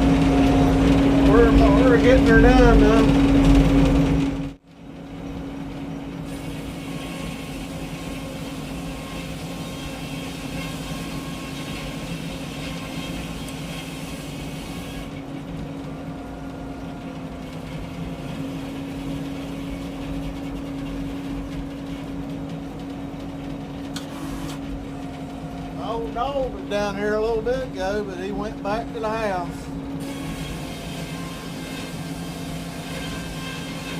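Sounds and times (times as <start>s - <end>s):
sawmill engine hum: 0.0s - 33.9s
saw hissing whir: 6.2s - 15.2s, 29.0s - 33.9s.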